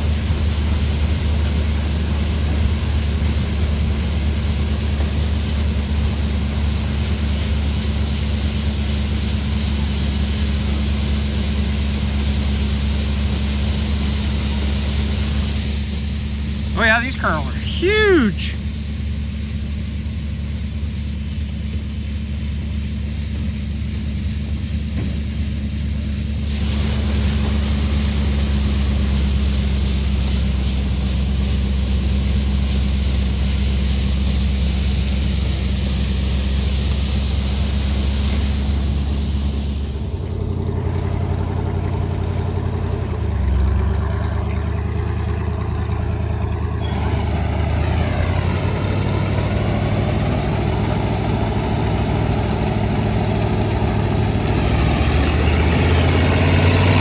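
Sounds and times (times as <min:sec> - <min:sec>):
harvester engine running: 0:00.0 - 0:57.0
broad rushing noise: 0:16.7 - 0:18.6.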